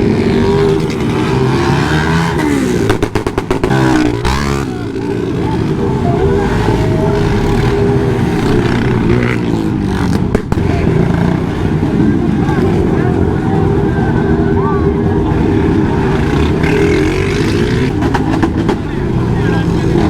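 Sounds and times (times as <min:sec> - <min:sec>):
motorcycle engines revving: 0:00.0 - 0:20.0
sharp cracks: 0:02.8 - 0:04.6.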